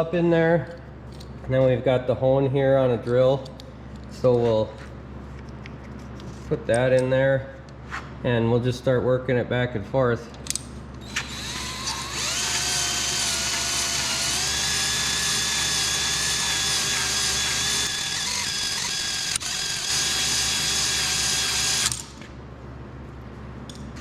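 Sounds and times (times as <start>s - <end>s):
drill motor whine: 11.0s - 22.2s.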